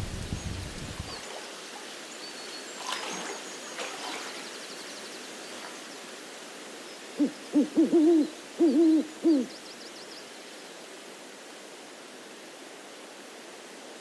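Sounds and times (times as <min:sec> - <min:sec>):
steady hiss: 0:00.0 - 0:02.8.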